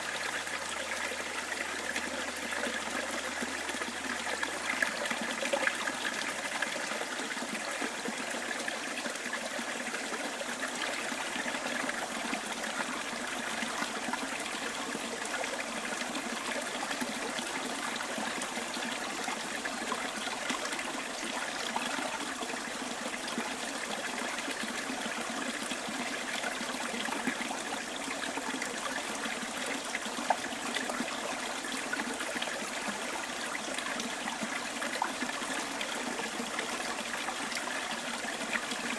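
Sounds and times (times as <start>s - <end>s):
stream trickling: 0.0s - 38.9s.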